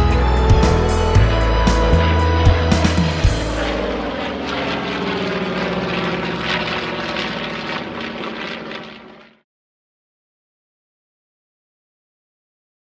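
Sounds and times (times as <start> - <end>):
airplane engine drone: 0.0 - 9.4.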